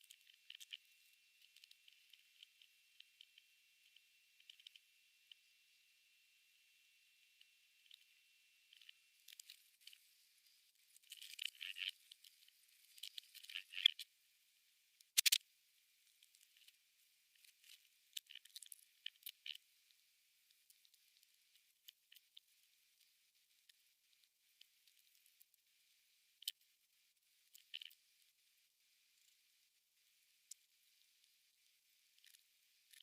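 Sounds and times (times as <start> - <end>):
sharp crackle: 0.0 - 4.8, 8.7 - 14.0, 15.0 - 15.4
small clicks: 0.0 - 5.5, 10.9 - 14.0, 15.0 - 15.4, 17.4 - 19.6.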